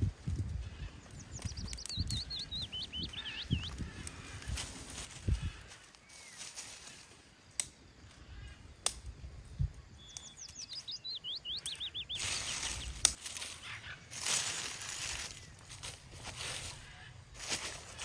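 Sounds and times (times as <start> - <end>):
wind gusts: 0.0 - 6.9, 7.9 - 18.0
sharp clicks: 1.1 - 2.5, 12.6 - 13.3.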